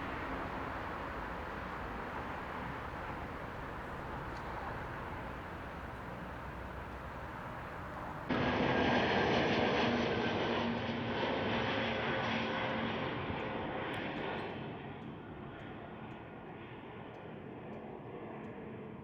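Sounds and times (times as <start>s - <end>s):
steady rushing noise: 0.0s - 8.4s
aircraft engines running: 0.0s - 19.0s.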